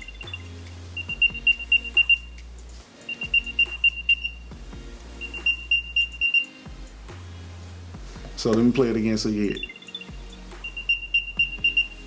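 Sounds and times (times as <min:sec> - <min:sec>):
rapid high-pitched beeps: 0:00.0 - 0:02.4, 0:03.0 - 0:06.6, 0:09.5 - 0:12.0.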